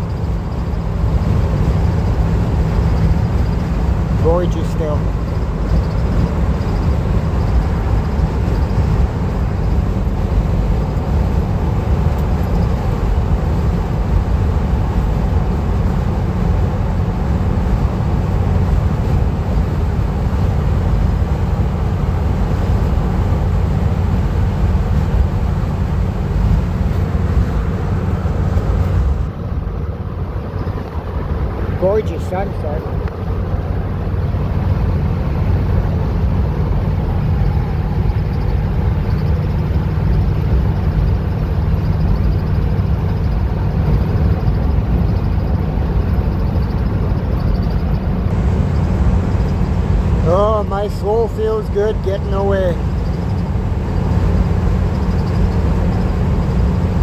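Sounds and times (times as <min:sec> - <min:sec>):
van road and engine rumble: 0:00.0 - 0:57.0.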